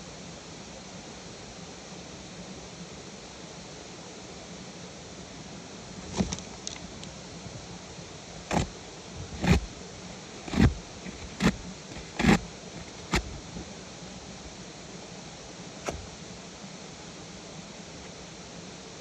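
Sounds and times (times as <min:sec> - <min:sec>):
sharp knocks: 0:08.5 - 0:08.7, 0:09.3 - 0:09.7, 0:10.4 - 0:13.6.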